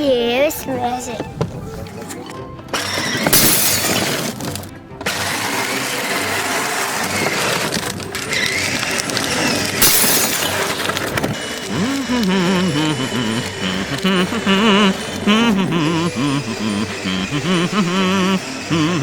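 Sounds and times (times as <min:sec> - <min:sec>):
background music: 0:00.0 - 0:19.0
loud shattering crash: 0:03.2 - 0:04.4, 0:09.7 - 0:10.9.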